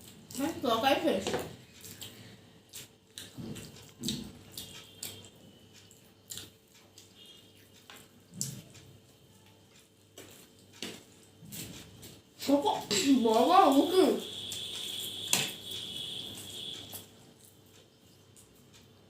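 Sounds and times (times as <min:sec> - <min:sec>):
wet chewing smacks: 0:01.8 - 0:08.8.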